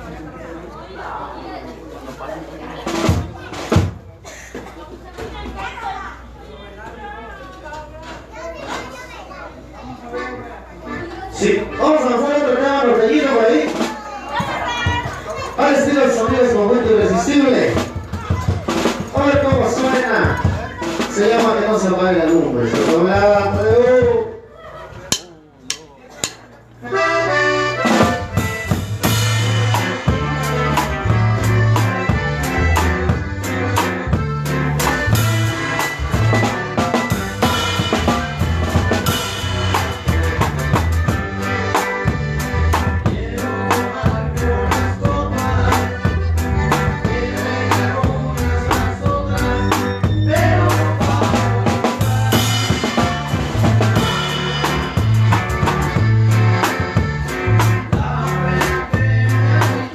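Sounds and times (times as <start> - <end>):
live band playing: 0.0 - 6.4, 8.2 - 59.9
drum kit beat: 2.8 - 4.1, 13.2 - 24.5, 25.1 - 59.9
accordion melody: 9.8 - 24.4, 26.6 - 59.9
bass line: 26.8 - 59.9.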